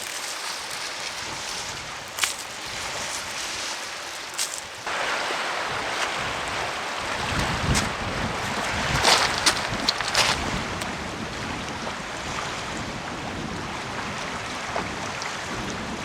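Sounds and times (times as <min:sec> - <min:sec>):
surf: 0:00.0 - 0:15.8
wind: 0:00.0 - 0:16.0
wind gusts rumbling on microphone: 0:04.8 - 0:16.0.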